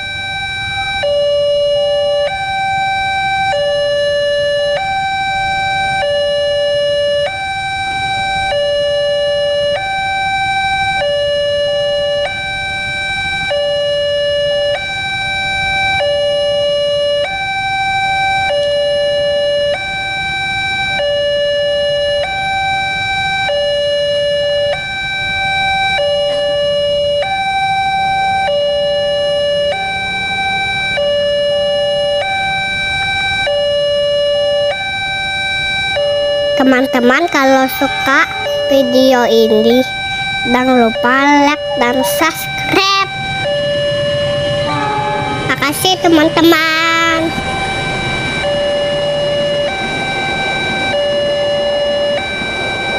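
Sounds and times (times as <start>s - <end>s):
level crossing two-tone alarm: 0.0s - 52.9s
low rumble: 43.1s - 46.4s.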